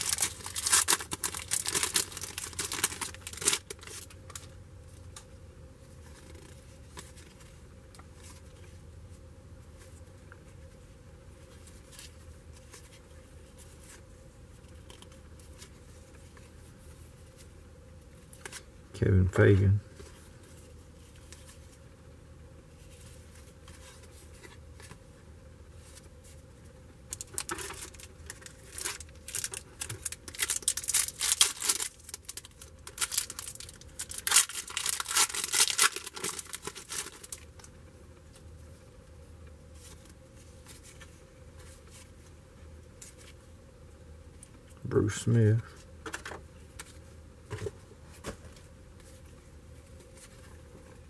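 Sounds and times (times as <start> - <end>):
card pack wrapper tearing: 0.0 - 4.4, 27.1 - 37.4.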